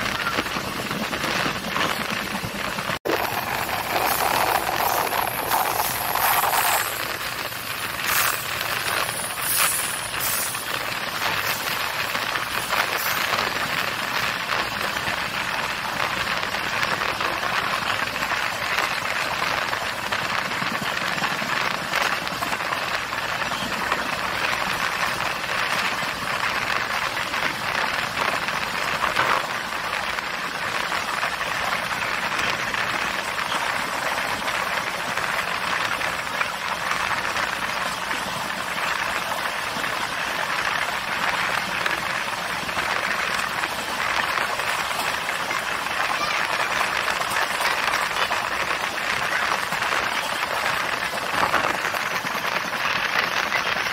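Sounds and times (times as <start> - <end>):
train wheels on rails rattling: 0.0 - 16.5.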